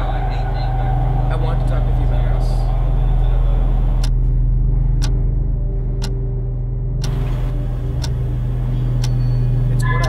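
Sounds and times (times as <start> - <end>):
sharp clock-like ticks: 7.0 - 10.0.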